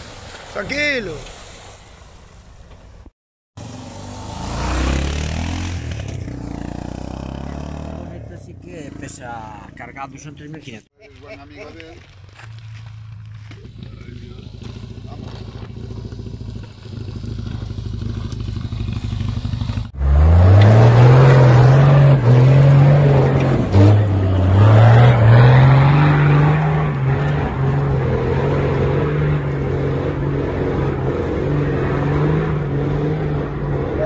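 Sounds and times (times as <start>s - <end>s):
off-road engine revving: 3.6s - 10.6s, 12.4s - 34.0s.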